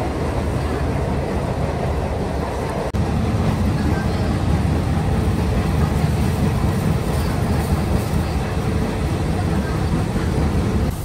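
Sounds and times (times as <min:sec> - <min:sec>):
train rumbling from inside carriage: 0:00.0 - 0:11.0.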